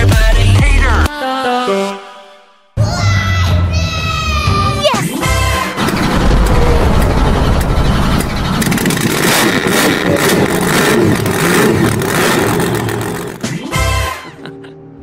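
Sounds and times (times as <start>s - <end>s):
car engine revving: 5.4s - 13.5s.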